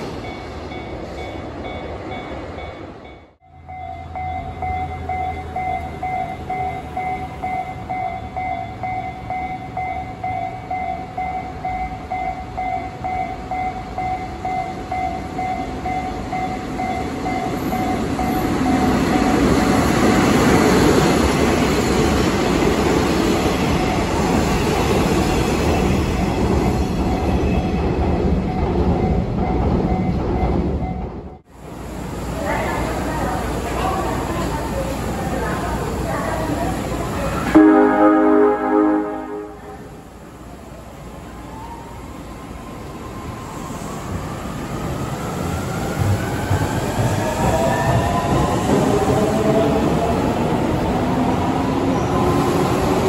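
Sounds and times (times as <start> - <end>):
diesel locomotive passing: 31.6 - 53.0
level crossing bell ringing: 37.6 - 39.9.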